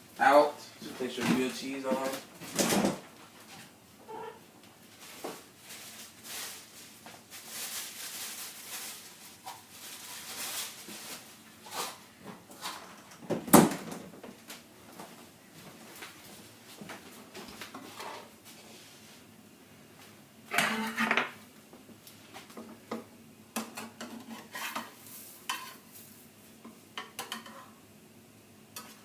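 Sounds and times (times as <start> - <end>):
rustling: 4.9 - 12.0.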